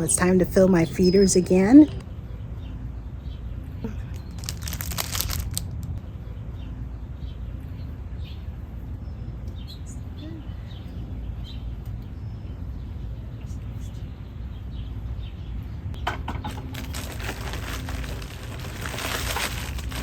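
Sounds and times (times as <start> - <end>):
steady low rumble: 16.6 - 20.0.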